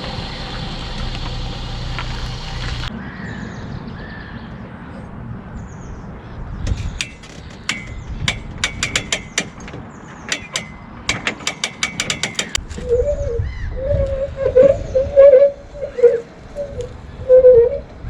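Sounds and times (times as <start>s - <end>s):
metal ratchet clicking: 6.7s - 12.6s
wavering pitched call: 12.8s - 17.9s.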